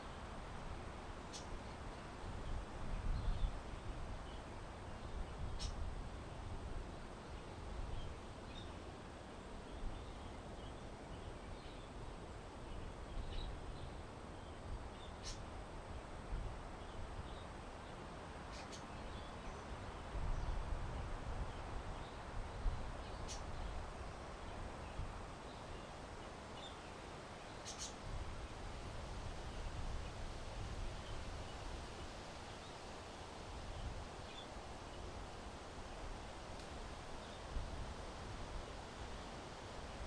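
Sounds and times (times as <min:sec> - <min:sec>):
wind rumbling on microphone: 0:00.0 - 0:08.7, 0:19.0 - 0:25.9, 0:27.8 - 0:32.8
faint small birds chirping: 0:01.2 - 0:05.9, 0:12.6 - 0:15.6, 0:16.8 - 0:28.2, 0:30.9 - 0:37.8.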